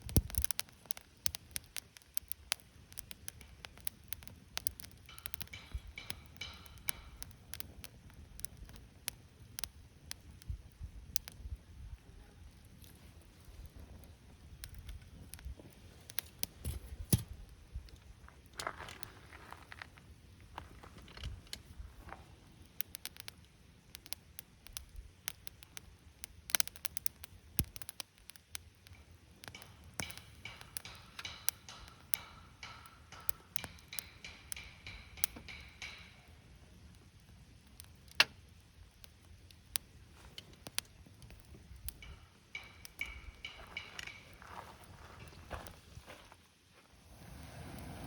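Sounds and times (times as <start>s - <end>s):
campfire crackling: 0.0s - 48.0s
fire pops: 0.0s - 48.0s.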